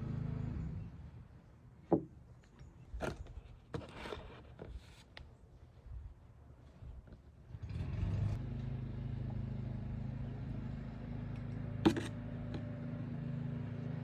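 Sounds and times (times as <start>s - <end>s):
low engine hum: 0.0s - 1.5s, 7.5s - 14.0s.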